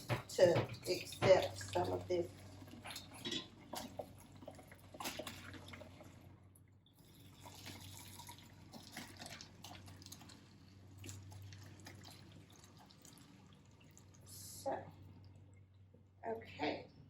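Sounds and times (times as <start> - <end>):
water trickling and dripping: 0.0 - 16.2.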